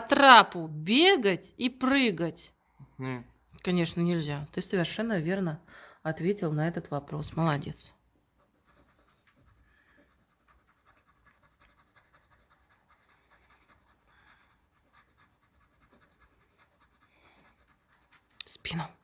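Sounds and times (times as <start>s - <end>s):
writing on paper: 8.3s - 19.0s.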